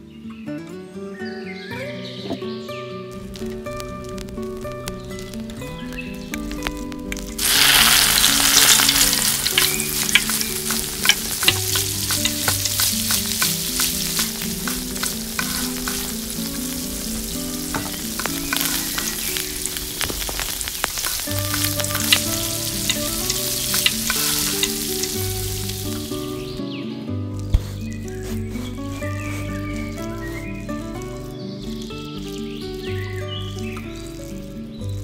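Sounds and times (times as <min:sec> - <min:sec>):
food sizzling in hot oil: 0:03.1 - 0:26.6, 0:27.3 - 0:35.0
oil crackling and popping: 0:03.1 - 0:35.0.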